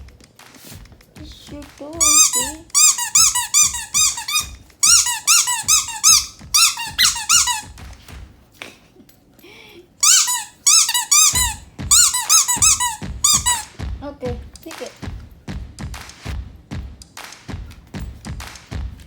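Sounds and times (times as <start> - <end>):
squeaky dog toy squeaking: 2.0 - 7.7, 10.0 - 13.7.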